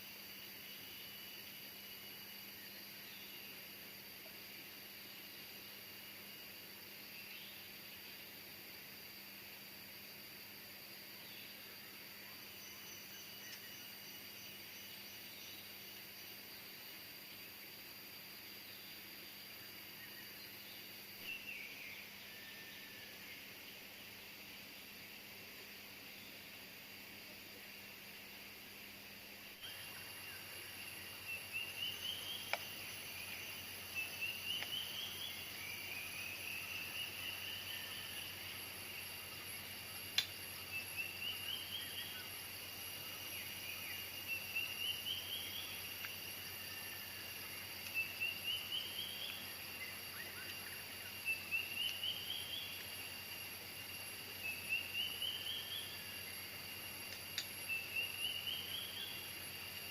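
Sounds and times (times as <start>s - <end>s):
insects droning: 0.0s - 59.9s
faint clicks: 32.4s - 32.8s, 40.1s - 40.4s, 57.0s - 57.6s.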